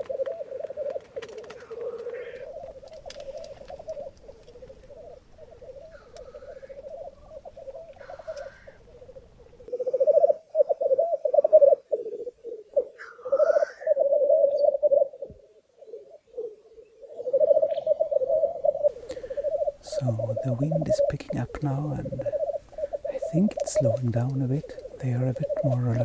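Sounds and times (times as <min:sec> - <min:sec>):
grouse bubbling display song: 0:02.1 - 0:26.0
rising hissing calls: 0:17.4 - 0:26.0.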